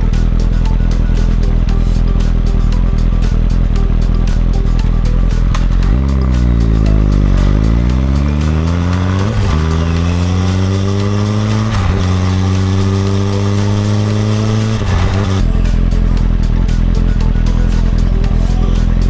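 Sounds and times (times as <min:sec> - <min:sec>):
motorcycle engine accelerating: 0:00.0 - 0:19.0
motorcycle gear upshifts: 0:05.2 - 0:15.5.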